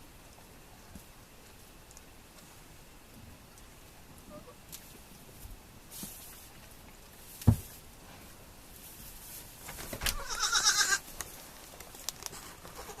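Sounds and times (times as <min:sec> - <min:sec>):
goat kid bleating: 0:10.1 - 0:11.0, 0:12.4 - 0:13.0.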